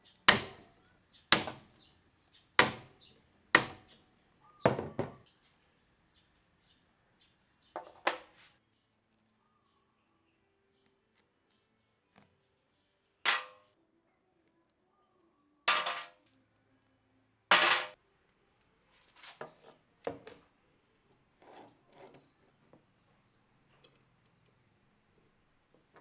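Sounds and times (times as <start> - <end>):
metal tools clanking: 0.3 - 0.7, 1.4 - 1.6, 2.6 - 2.9, 3.6 - 3.8.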